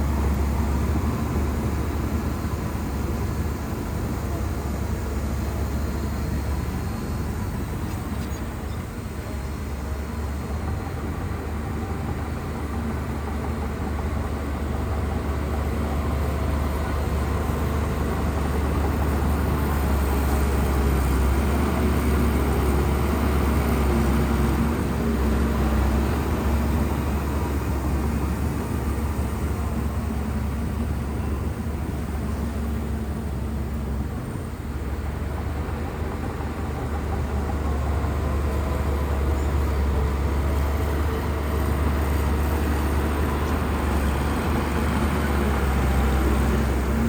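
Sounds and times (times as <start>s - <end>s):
bulldozer diesel engine rumbling: 0.0s - 47.0s.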